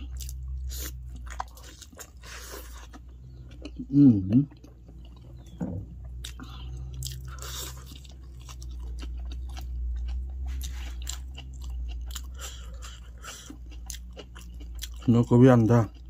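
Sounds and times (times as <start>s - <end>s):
person chewing and crunching food: 0.0s - 16.0s.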